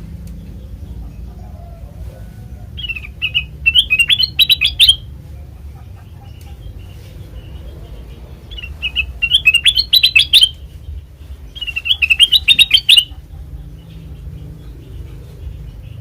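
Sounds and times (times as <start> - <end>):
bulbul chirping: 2.8 - 5.1, 8.4 - 10.7, 11.5 - 13.2.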